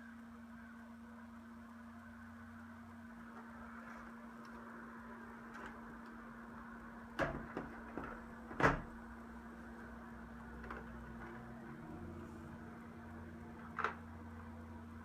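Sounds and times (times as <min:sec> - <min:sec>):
steady low hum: 0:00.0 - 0:15.0
hard objects knocking and clicking: 0:07.2 - 0:08.9.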